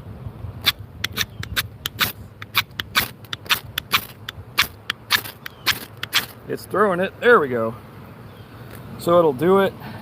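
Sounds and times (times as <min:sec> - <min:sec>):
knife scraping ferro rod: 0:00.7 - 0:06.4.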